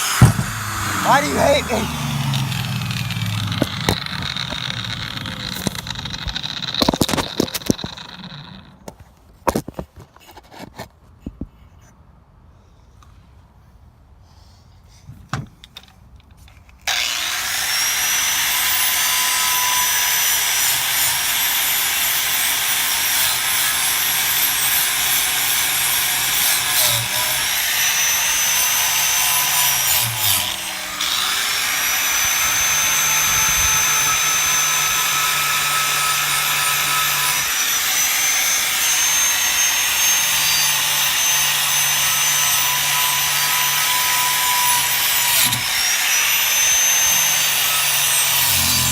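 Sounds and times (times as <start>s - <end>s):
power tool whining: 0.0s - 8.9s, 16.9s - 48.9s
rough scraping on metal: 47.9s - 48.9s.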